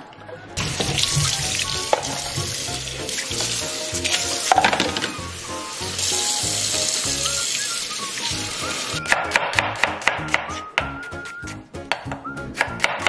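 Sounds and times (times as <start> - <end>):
background music: 0.0 - 13.0
food sizzling in a pan: 1.6 - 9.0.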